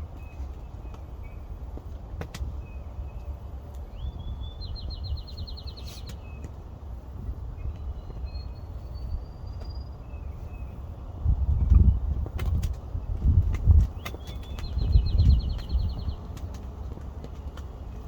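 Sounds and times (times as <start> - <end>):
bird song with fast trill: 0.0 - 1.5, 2.5 - 6.5, 7.5 - 12.2, 13.8 - 16.4
songbirds chirping: 0.0 - 18.0.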